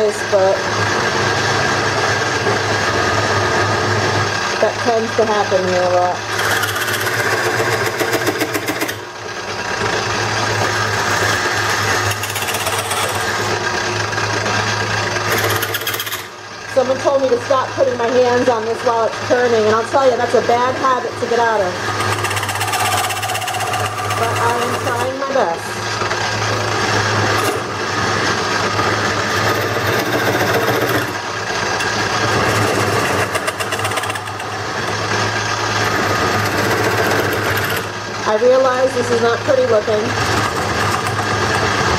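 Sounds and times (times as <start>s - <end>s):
lathe motor hum: 0.0s - 41.9s
tool cutting spinning wood: 0.0s - 41.9s
turning tool chattering on wood: 6.3s - 9.0s, 10.6s - 13.6s, 15.2s - 16.3s, 21.8s - 25.2s, 29.3s - 37.9s, 40.1s - 41.9s.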